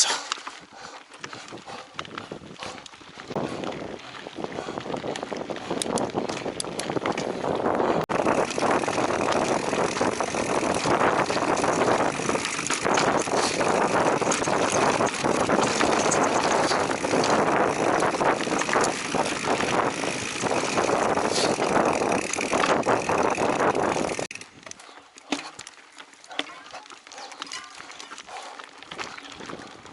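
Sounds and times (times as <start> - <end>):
bike tyres on dirt trail: 0.0 - 29.9
bike rattling over bumps: 0.5 - 29.9
wind on microphone: 1.2 - 24.7.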